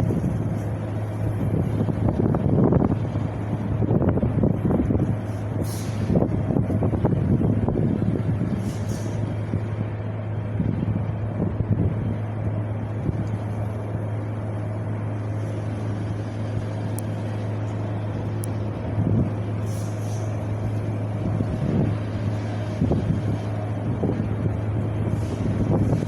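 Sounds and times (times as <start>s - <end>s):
steady low rumble: 0.0s - 26.0s
wind gusting: 20.3s - 26.0s.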